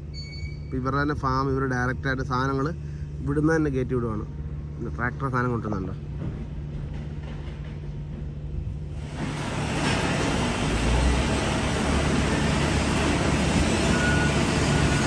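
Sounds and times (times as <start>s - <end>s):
rushing noise: 8.9s - 15.0s.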